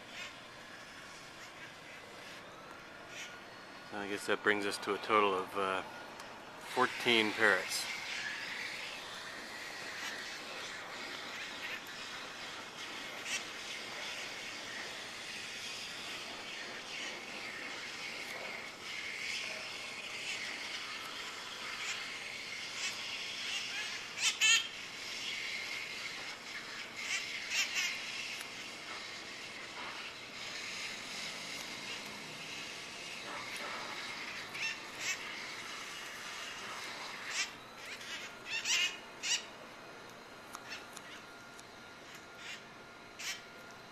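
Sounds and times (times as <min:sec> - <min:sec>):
parakeets squawking: 0:06.7 - 0:28.4, 0:33.4 - 0:35.6, 0:36.3 - 0:39.6, 0:43.2 - 0:43.4
parakeets chattering: 0:06.7 - 0:32.6, 0:33.2 - 0:39.6, 0:40.6 - 0:41.2, 0:43.2 - 0:43.4.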